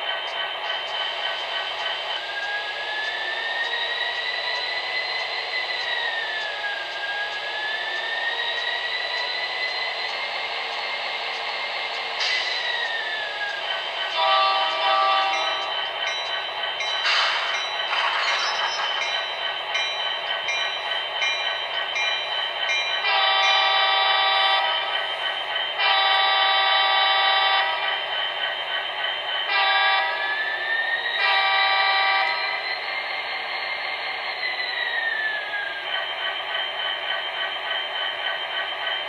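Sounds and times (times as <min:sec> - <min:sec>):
airhorn blowing: 0:14.2 - 0:15.4.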